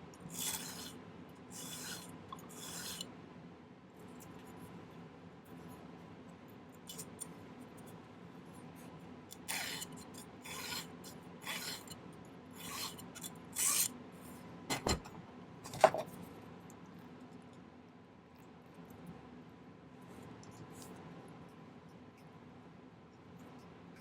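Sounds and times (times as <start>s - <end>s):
hand file rasping on metal wire: 0.3s - 0.9s, 1.5s - 3.0s, 9.4s - 12.0s, 12.6s - 13.9s.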